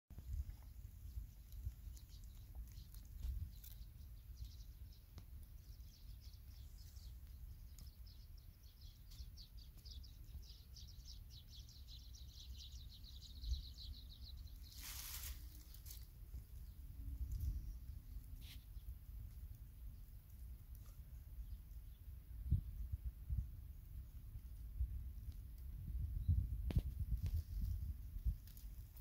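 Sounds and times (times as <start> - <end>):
bird chirping trill: 0.4 - 15.3
short rustle: 14.6 - 16.1.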